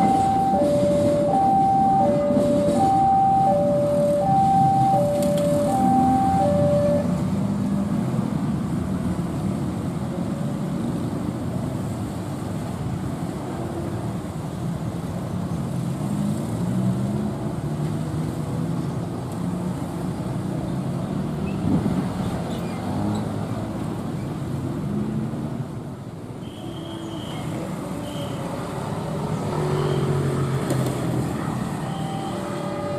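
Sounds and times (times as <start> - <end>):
train rumbling: 0.0 - 12.1.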